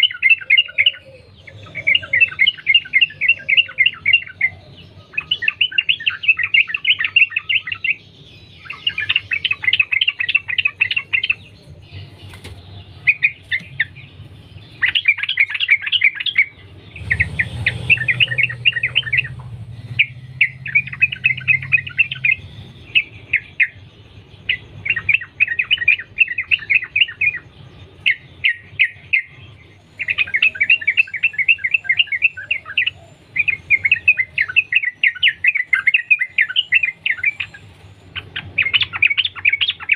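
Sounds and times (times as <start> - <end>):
bulbul singing: 0.0 - 39.9
faint low hum: 8.1 - 28.4.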